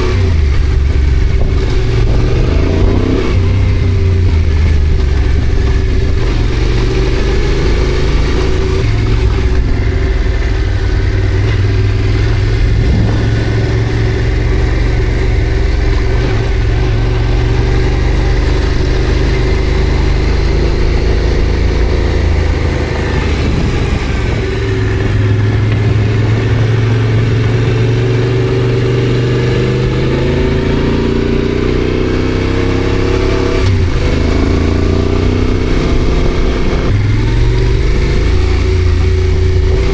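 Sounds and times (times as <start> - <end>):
motorcycle engine running: 0.0 - 39.9
motorcycle gear change: 0.1 - 26.7.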